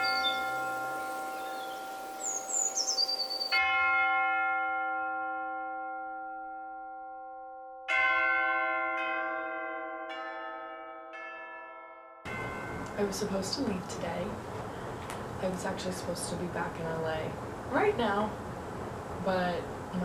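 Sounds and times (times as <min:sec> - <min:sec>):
bells ringing: 0:00.0 - 0:14.3.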